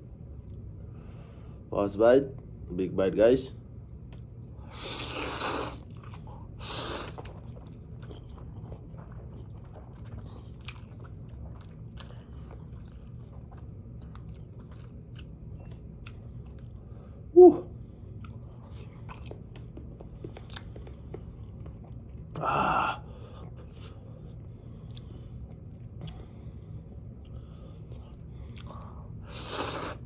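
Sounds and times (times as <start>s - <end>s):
person chewing noodles: 4.1s - 30.0s
person exclaiming woo: 17.4s - 17.7s.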